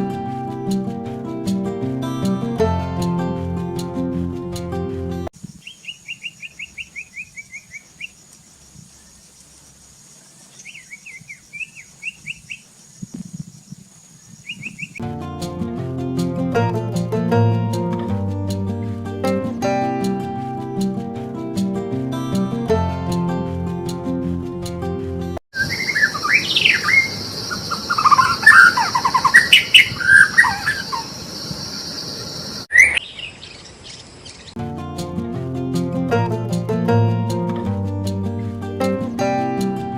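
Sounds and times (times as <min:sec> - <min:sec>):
songbird chirping: 0:05.4 - 0:15.0, 0:25.6 - 0:34.6
bird rising call: 0:25.6 - 0:34.6.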